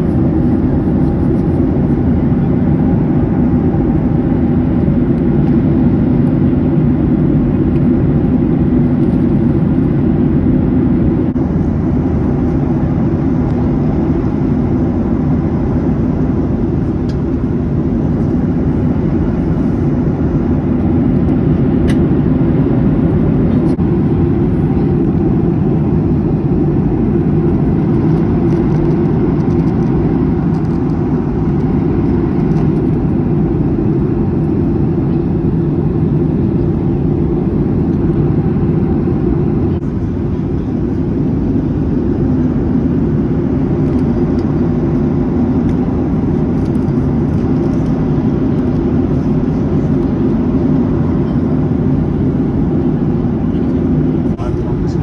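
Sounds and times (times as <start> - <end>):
jet cabin engine rumble: 0.0 - 55.0.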